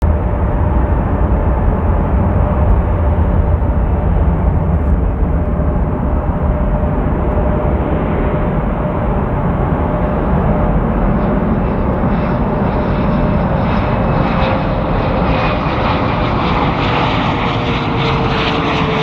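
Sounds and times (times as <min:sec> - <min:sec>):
faint engine whine: 0:00.1 - 0:19.0
jet engines rumbling: 0:00.1 - 0:19.0.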